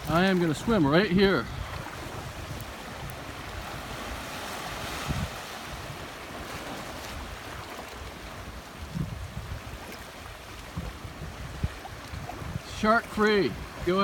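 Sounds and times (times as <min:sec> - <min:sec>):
seawater lapping: 0:00.0 - 0:14.0
wind buffeting microphone: 0:00.0 - 0:14.0.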